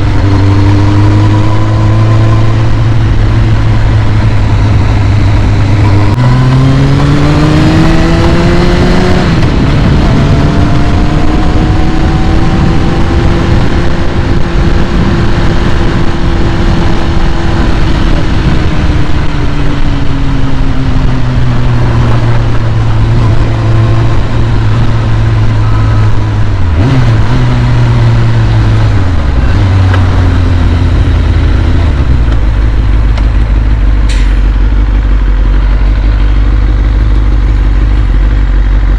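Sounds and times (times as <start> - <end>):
motorcycle engine idling: 30.0 - 38.9.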